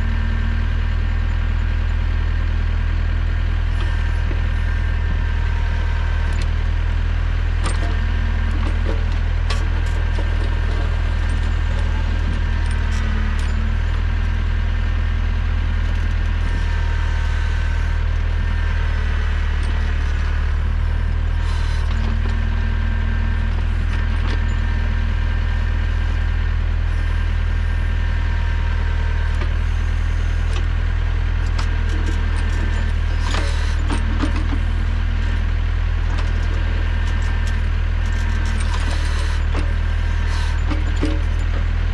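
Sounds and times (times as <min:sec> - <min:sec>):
tractor engine running under load: 0:00.0 - 0:41.9.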